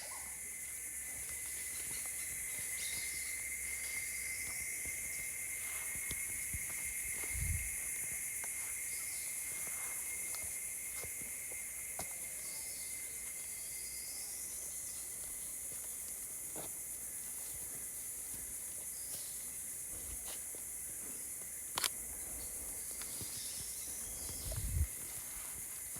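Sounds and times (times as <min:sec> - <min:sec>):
continuous thin whine: 0:00.0 - 0:25.9
high-pitched insect chorus: 0:00.0 - 0:25.9
faint clicks and snaps: 0:21.7 - 0:22.0.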